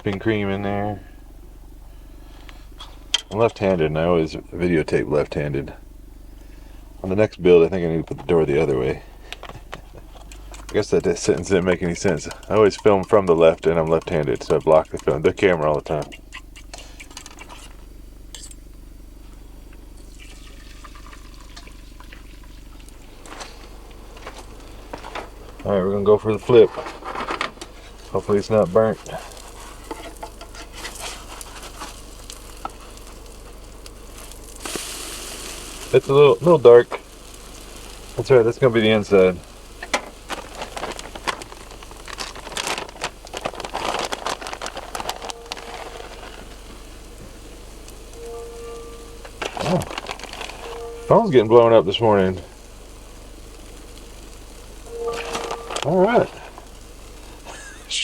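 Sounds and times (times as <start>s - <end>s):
low steady hum: 0.0s - 58.0s
omelet sizzling in a pan: 29.0s - 58.0s.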